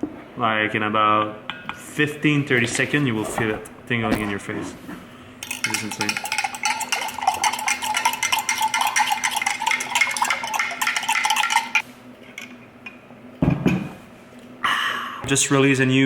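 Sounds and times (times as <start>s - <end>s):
spoon clinking in glass jar: 5.4s - 11.8s.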